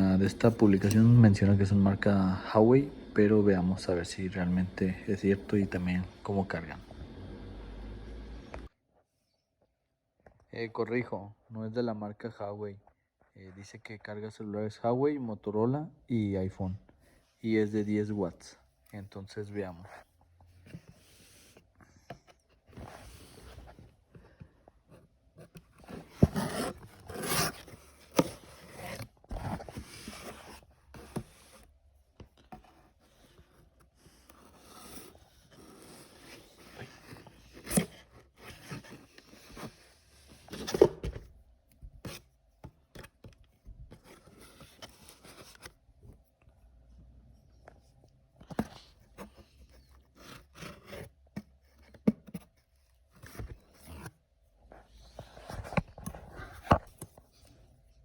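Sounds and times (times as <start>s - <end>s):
packaging rustling and scraping: 25.4s - 31.8s.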